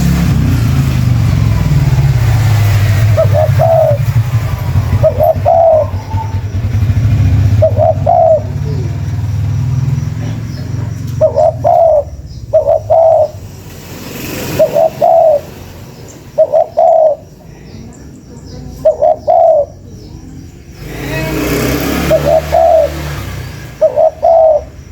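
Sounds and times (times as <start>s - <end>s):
dove cooing: 3.0s - 13.6s, 14.3s - 18.0s, 18.6s - 20.2s, 21.9s - 24.9s.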